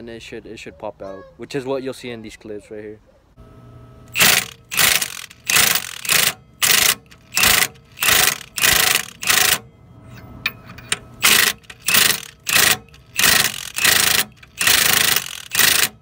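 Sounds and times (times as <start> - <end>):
ratchet wrench clicking: 4.1 - 9.6, 10.5 - 16.0.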